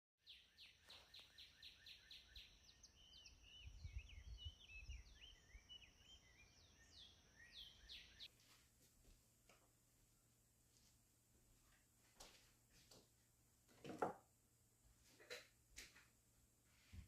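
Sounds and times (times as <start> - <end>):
faint birdsong: 0.2 - 8.4.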